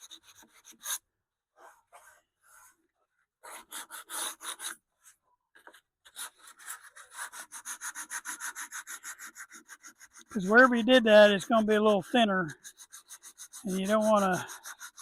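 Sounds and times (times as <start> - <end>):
sandpaper rubbing on wood: 3.5 - 4.8, 6.2 - 15.0.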